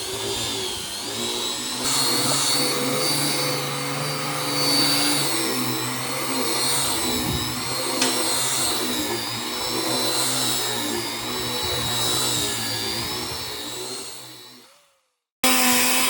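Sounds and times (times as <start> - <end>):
power tool whining on wood: 0.0 - 16.0.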